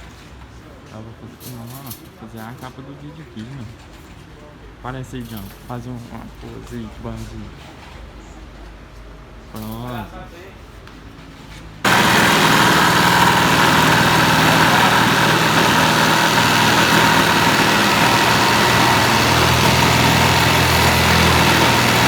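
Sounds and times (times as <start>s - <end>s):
motor whining over dense hum: 11.9s - 22.0s.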